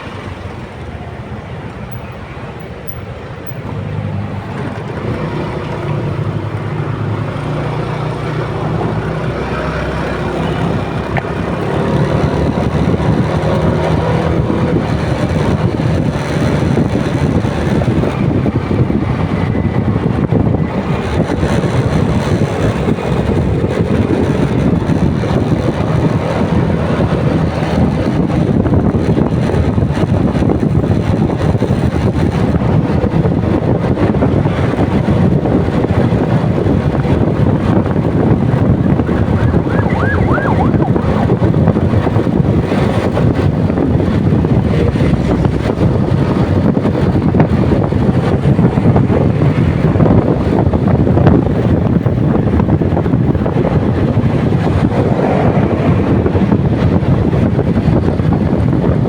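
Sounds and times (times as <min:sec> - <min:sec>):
wind buffeting microphone: 0:00.0 - 0:59.0
motorcycle engine: 0:36.2 - 0:46.6.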